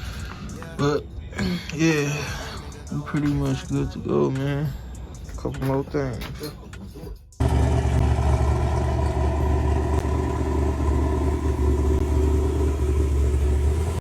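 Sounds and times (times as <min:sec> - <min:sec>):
car engine idling: 0:07.4 - 0:14.0.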